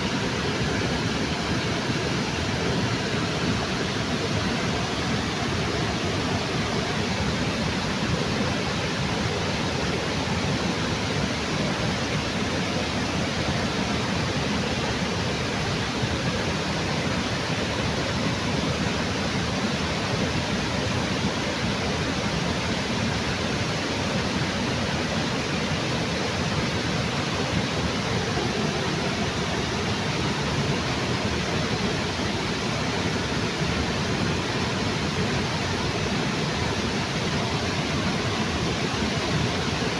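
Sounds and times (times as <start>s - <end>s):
waterfall rushing: 23.6s - 39.9s.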